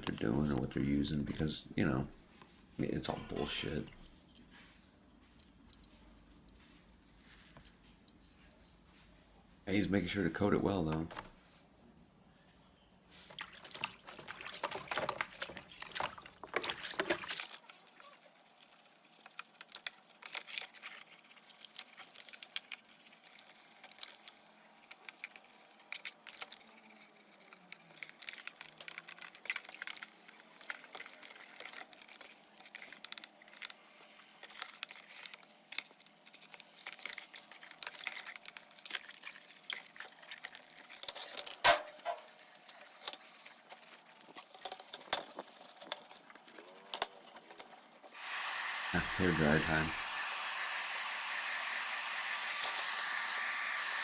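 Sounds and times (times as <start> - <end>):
wet brushing scratches: 13.2 - 41.4, 42.0 - 50.0.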